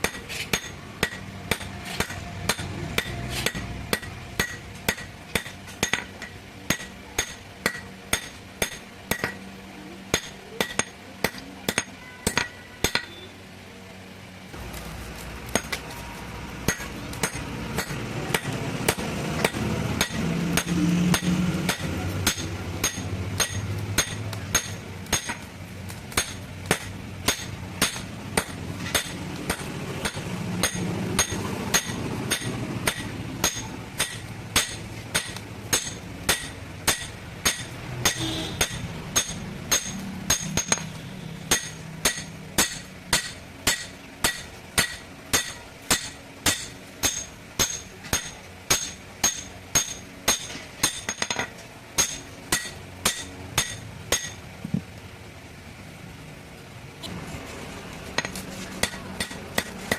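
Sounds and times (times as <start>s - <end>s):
hammer striking metal: 0.0s - 9.5s, 10.1s - 13.3s, 15.5s - 15.9s, 16.6s - 54.4s, 58.1s - 59.9s.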